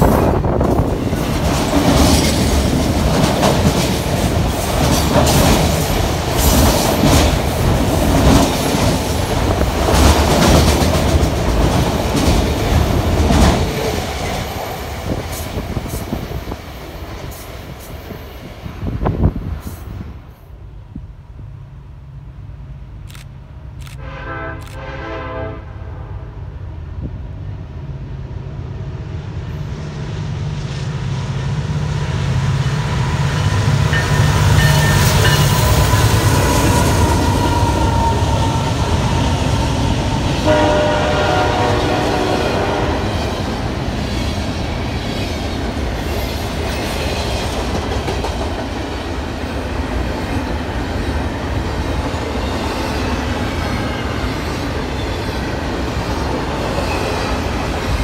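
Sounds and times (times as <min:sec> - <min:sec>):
freight cars clickety-clack: 0:00.0 - 0:18.4, 0:43.2 - 0:58.0
diesel locomotive passing: 0:00.0 - 0:58.0
train horn blast: 0:24.0 - 0:26.4, 0:40.4 - 0:43.5.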